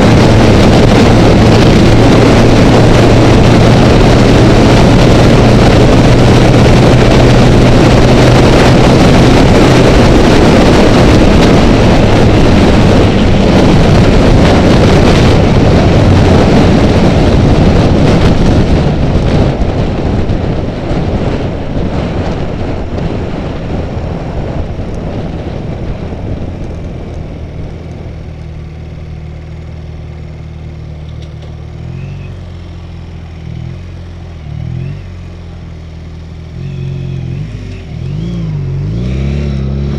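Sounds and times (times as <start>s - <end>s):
motorcycle engine running: 0.0s - 39.9s
wind rush on microphone: 0.0s - 39.9s
motorcycle engine revs: 33.3s - 35.5s, 36.3s - 39.9s.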